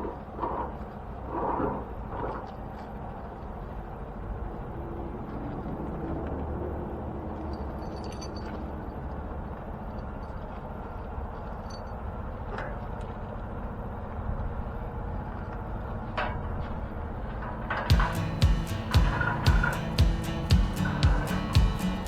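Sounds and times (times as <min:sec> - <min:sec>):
truck engine droning: 0:13.8 - 0:22.0.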